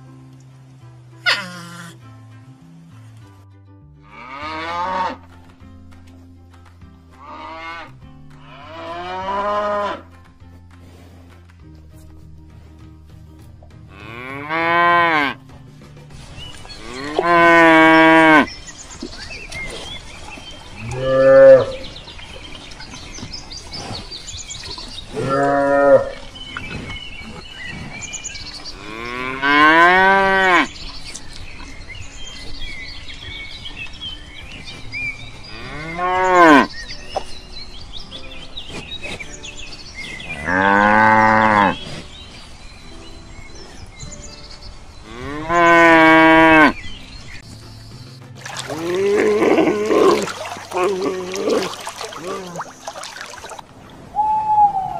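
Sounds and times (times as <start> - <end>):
cattle mooing: 20.8 - 21.8, 25.2 - 26.2, 48.7 - 52.6.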